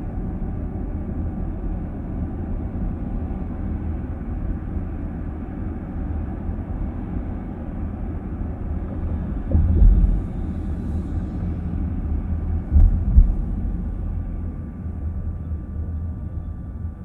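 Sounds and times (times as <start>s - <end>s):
road and tyre rumble in car: 0.0s - 17.0s
low thump: 9.4s - 10.6s, 12.6s - 14.0s.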